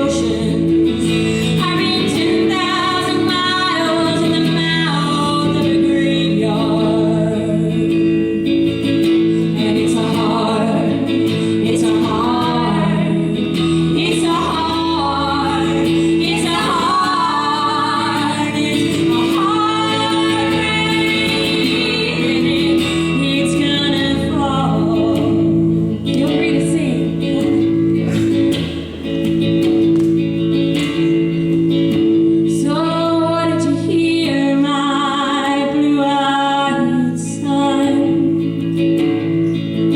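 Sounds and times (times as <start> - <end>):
strummed guitar: 0.0 - 39.9
woman singing folk song: 0.0 - 39.9.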